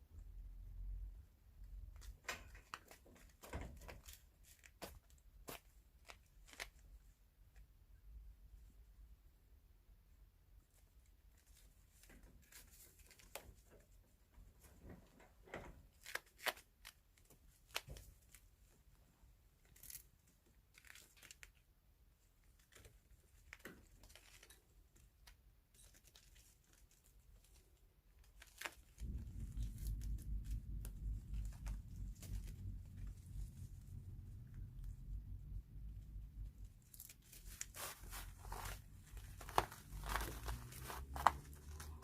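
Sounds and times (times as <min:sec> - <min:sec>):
kittens moving and playing: 0:01.6 - 0:07.8, 0:10.5 - 0:42.0
steady low rumble: 0:29.0 - 0:42.0.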